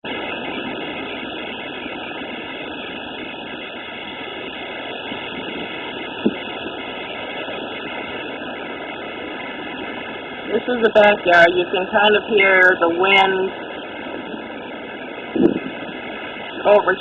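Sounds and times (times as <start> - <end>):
hurricane wind rushing: 0.0 - 17.0.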